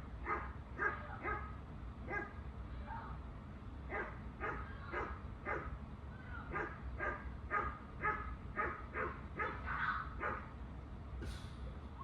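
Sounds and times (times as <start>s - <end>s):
dog barking: 0.2s - 1.5s, 2.1s - 2.4s, 3.9s - 5.7s, 6.5s - 9.6s, 10.2s - 10.5s.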